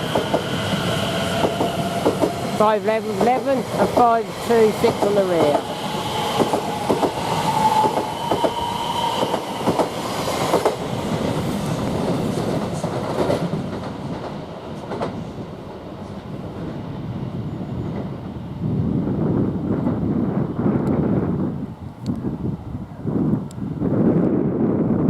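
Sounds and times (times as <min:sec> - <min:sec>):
train wheels clicking over rail joints: 0:00.0 - 0:05.8, 0:09.2 - 0:15.2.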